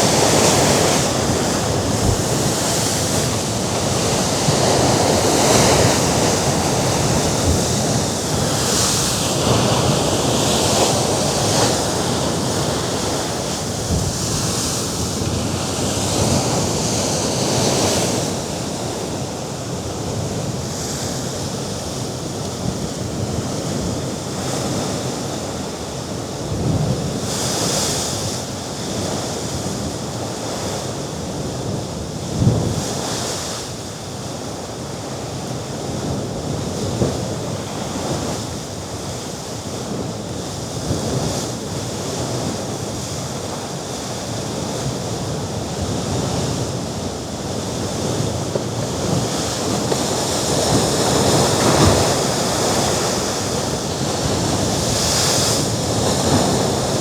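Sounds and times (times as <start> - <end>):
wind on microphone: 0.0 - 33.5, 35.1 - 57.0
waves washing against rocks: 40.7 - 57.0.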